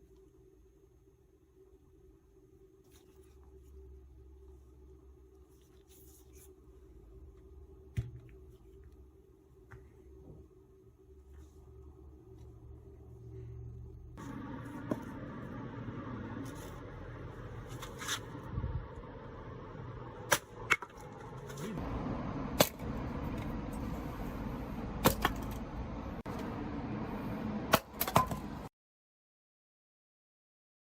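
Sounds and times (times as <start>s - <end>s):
axe chopping firewood: 20.3s - 21.7s, 25.0s - 25.6s, 27.7s - 28.5s.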